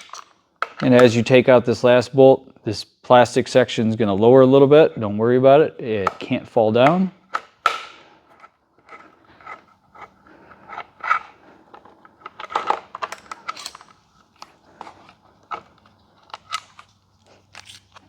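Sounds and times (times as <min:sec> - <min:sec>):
metal bolts clinking on plastic: 0:10.7 - 0:17.0.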